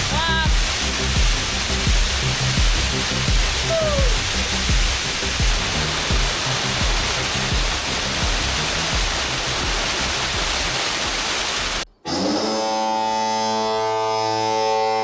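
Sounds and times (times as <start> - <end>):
background music with bass: 0.0 - 11.2
waterfall rushing: 0.0 - 11.9.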